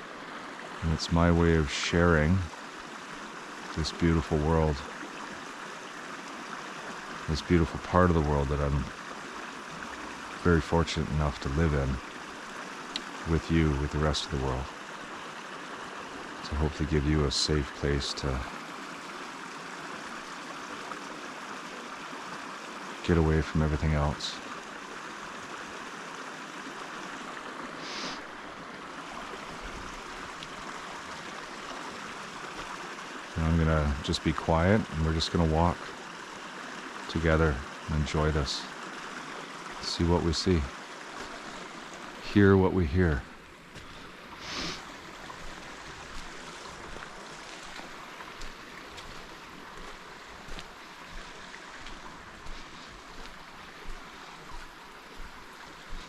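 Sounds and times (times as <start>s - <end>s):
rushing water or wind: 0.0s - 56.0s
faint footsteps on a trail: 29.1s - 33.1s, 40.9s - 42.3s, 43.2s - 56.0s
bright hiss: 44.4s - 44.9s.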